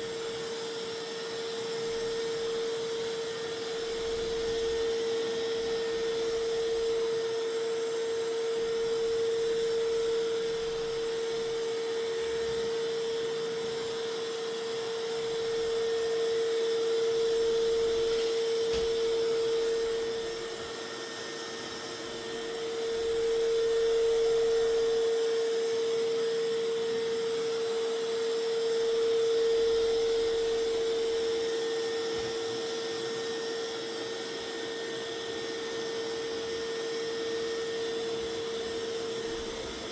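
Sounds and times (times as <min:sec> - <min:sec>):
robot vacuum motor whine: 0:00.0 - 0:39.9.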